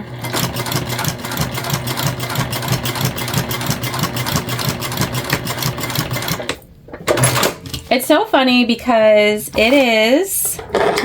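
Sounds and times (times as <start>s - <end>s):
sewing machine running: 0.0s - 6.6s.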